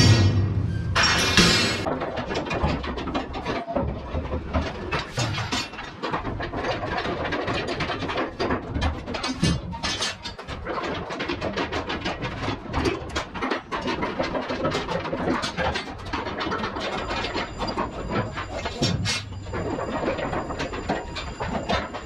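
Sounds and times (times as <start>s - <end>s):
low mechanical drone: 0.0s - 1.9s
metallic clanking and rattling: 0.0s - 22.0s.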